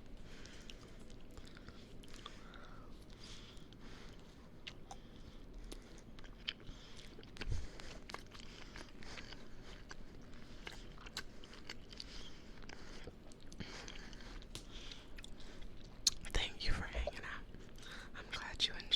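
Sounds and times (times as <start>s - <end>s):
close chewing and crunching: 0.0s - 18.9s.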